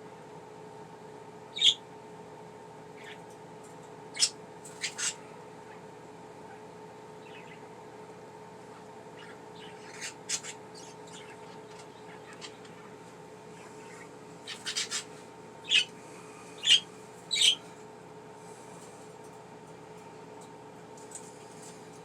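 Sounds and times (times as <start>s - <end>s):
faint steady hum: 0.0s - 22.0s
budgerigars chirping and squawking: 1.6s - 1.8s, 3.0s - 3.2s, 4.1s - 5.8s, 7.2s - 7.6s, 8.7s - 15.9s, 16.5s - 17.6s.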